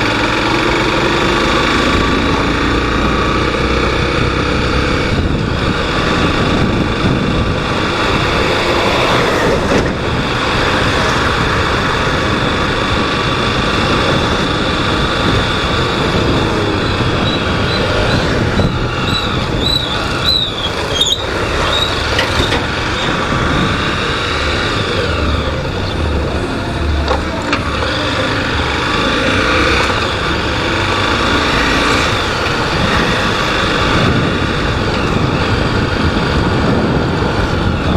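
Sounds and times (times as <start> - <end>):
motorcycle engine: 0.0 - 37.9
wind and road noise: 0.0 - 37.9
high wavering squeal: 16.4 - 22.2.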